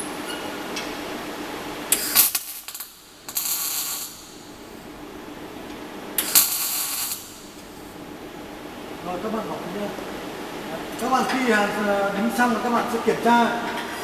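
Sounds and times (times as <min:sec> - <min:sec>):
arc welding crackling: 0:01.7 - 0:08.0.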